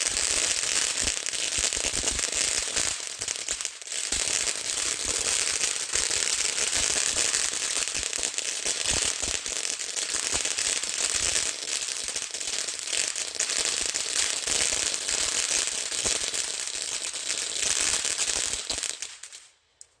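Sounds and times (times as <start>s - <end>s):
firework hissing spray: 0.0s - 8.2s
firework crackling: 0.0s - 19.6s.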